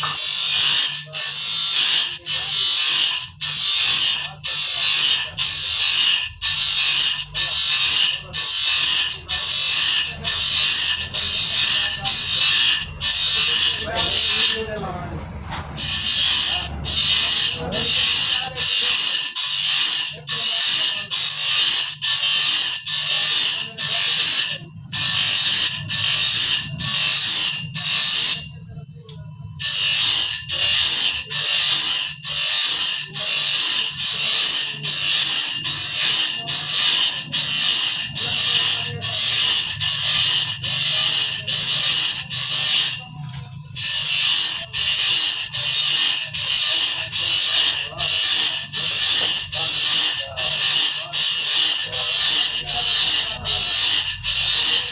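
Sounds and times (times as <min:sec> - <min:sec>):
saw blade sharpening strokes: 0:00.0 - 0:14.9, 0:15.7 - 0:28.5, 0:29.6 - 0:54.9.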